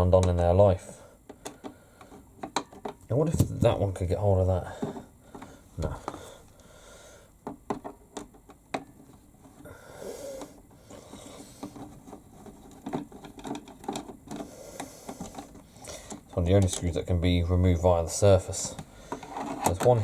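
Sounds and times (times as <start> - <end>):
screwdriver scraping plastic: 11.1 - 16.3, 19.1 - 20.0.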